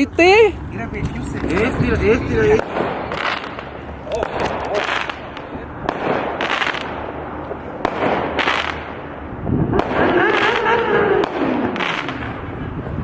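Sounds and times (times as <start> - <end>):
firework crack: 1.0 - 13.0
fireworks hissing bursts: 2.6 - 12.3.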